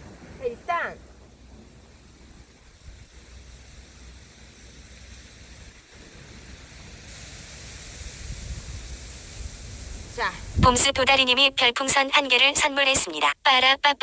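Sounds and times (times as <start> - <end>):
wind buffeting microphone: 0.0 - 3.2, 8.0 - 11.4.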